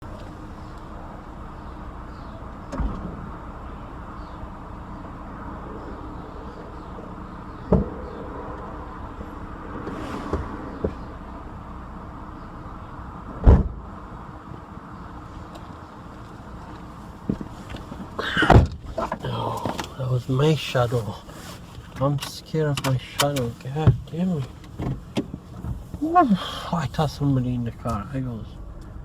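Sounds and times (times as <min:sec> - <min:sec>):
steady low hum: 0:00.0 - 0:29.0
dull thumps inside a car: 0:07.6 - 0:08.2, 0:13.3 - 0:13.8, 0:17.2 - 0:20.0, 0:21.8 - 0:26.1.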